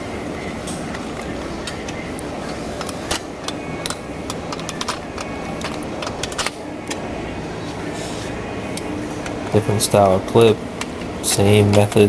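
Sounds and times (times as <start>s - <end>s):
plastic clips clicking and rattling: 0.0s - 7.1s
low shop hum: 0.0s - 12.0s.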